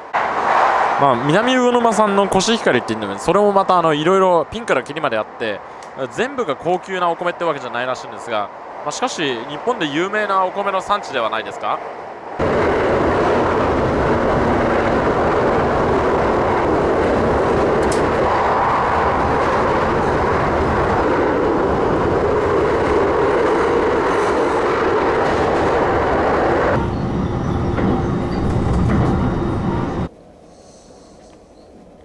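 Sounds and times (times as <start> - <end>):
train wheels rolling on rail: 7.2 - 30.2.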